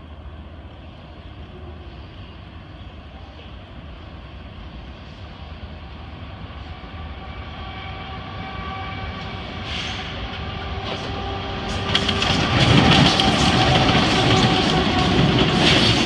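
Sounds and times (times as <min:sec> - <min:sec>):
diesel locomotive engine drone: 0:00.0 - 0:16.0
train wheels clattering over joints: 0:10.2 - 0:16.0.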